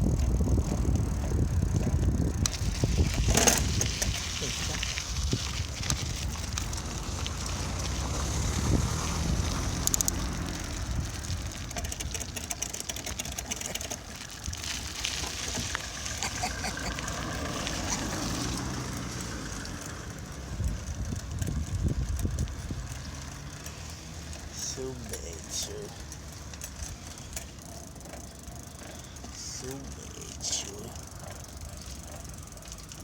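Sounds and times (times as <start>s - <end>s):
wind rumbling on microphone: 0.0s - 24.5s
bicycle clicks and rattles: 0.0s - 33.0s
bicycle tyre noise: 0.0s - 33.0s.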